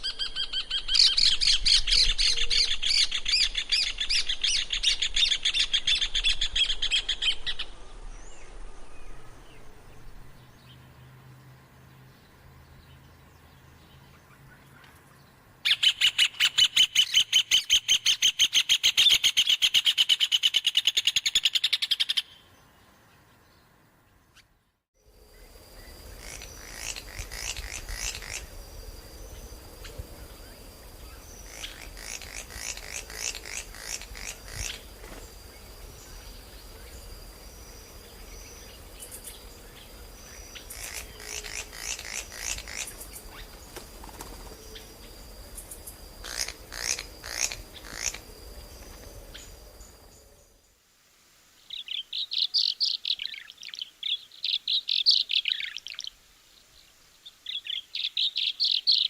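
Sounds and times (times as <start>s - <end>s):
low steady background noise: 0.0s - 59.0s
birds chirping: 25.3s - 50.6s.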